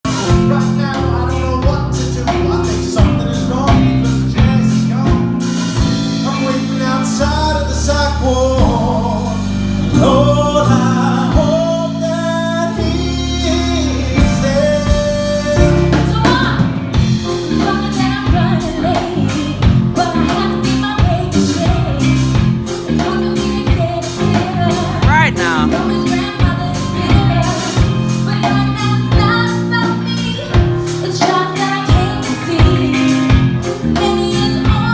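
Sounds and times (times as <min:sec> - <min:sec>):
bass: 0:00.0 - 0:34.9
drums: 0:00.0 - 0:34.9
live band playing: 0:00.0 - 0:34.9
person singing: 0:24.9 - 0:26.0.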